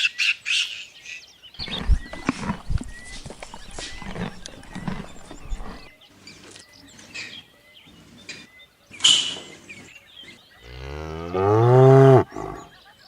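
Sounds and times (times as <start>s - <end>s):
cow mooing: 10.7s - 12.6s.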